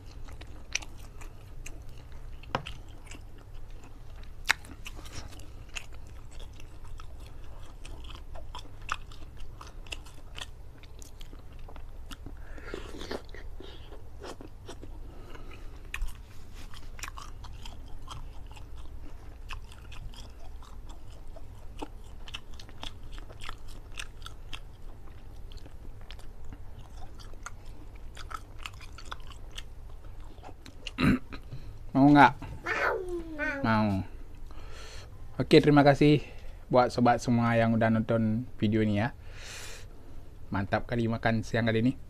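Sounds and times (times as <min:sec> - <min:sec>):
wet chewing with mouth clicks: 0:00.0 - 0:31.5.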